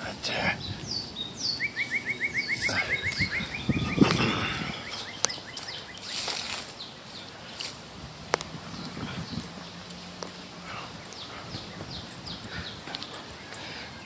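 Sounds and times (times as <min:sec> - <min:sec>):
songbird trilling: 0:00.0 - 0:07.7
rustle in brush: 0:04.9 - 0:11.1.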